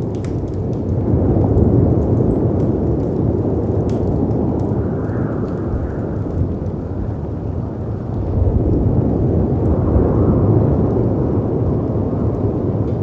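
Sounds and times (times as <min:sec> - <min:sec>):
faint fireplace crackles: 0:00.0 - 0:13.0
wind rushing: 0:00.0 - 0:13.0.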